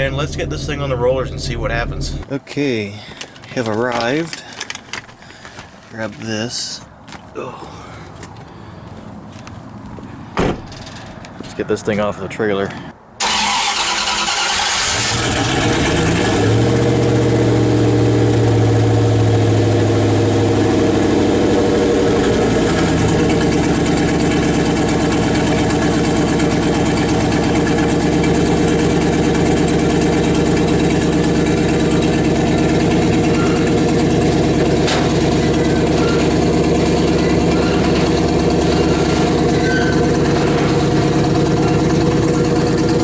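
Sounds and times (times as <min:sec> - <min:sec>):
engine starting and idling: 0:13.2 - 0:18.9, 0:21.9 - 0:43.0.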